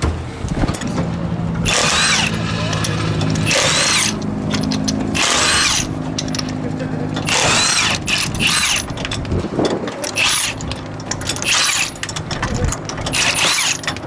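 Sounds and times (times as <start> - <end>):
low engine rumble: 0.0 - 14.0
impact wrench whining bursts: 1.6 - 6.6, 7.2 - 9.2, 10.1 - 12.1, 13.1 - 14.0.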